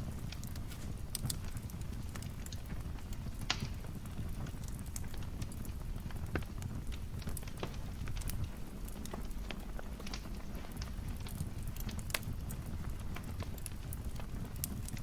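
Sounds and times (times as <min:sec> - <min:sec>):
fire popping and snapping: 0:00.0 - 0:15.0
fire rumbling: 0:00.0 - 0:15.0.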